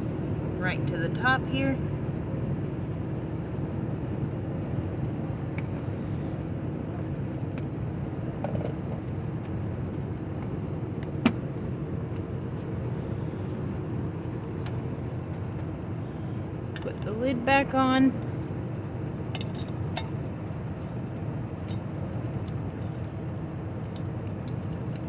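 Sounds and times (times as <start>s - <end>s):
truck engine and road rumble: 0.0s - 25.0s.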